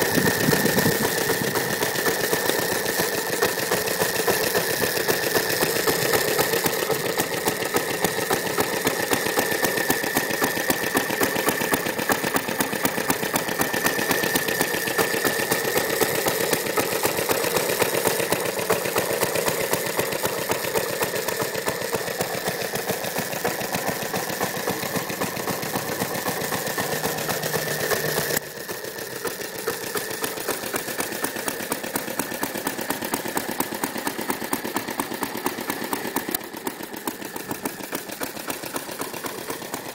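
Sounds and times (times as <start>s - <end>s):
single-cylinder mower engine running: 0.0s - 39.9s.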